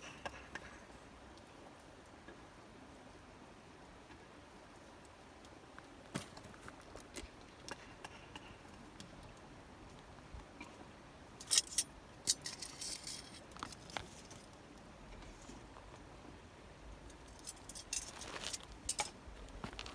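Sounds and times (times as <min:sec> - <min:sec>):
small objects clicking and clinking: 0:11.4 - 0:14.5, 0:17.1 - 0:19.2
rustling: 0:11.4 - 0:16.0, 0:17.1 - 0:19.9.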